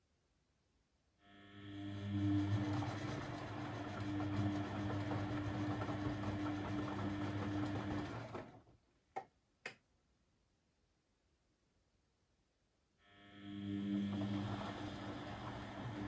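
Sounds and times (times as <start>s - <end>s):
washing machine drum whirring: 2.1s - 8.6s, 13.8s - 16.0s.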